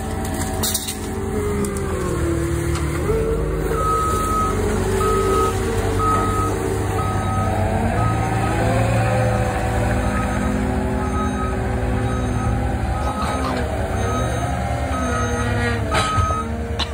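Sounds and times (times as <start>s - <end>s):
diesel engine under load: 0.0s - 16.9s
backup alarm beeping: 3.7s - 8.7s, 10.0s - 16.6s.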